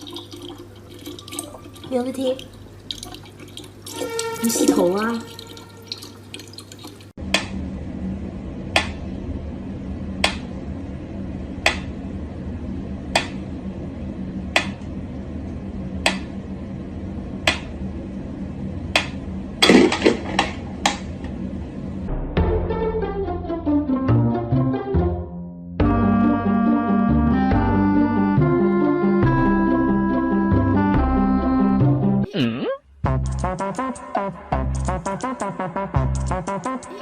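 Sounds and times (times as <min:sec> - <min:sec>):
steady low hum: 0:07.0 - 0:22.4.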